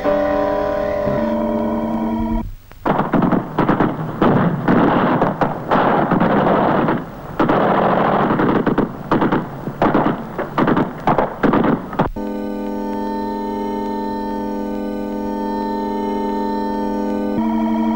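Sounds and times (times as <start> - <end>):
gunfire and explosions: 2.8 - 12.2.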